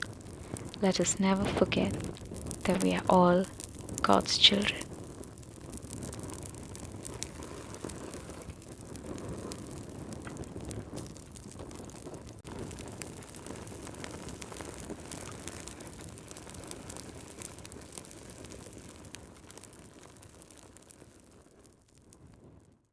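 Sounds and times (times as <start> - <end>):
wood fire crackling: 0.0 - 22.7.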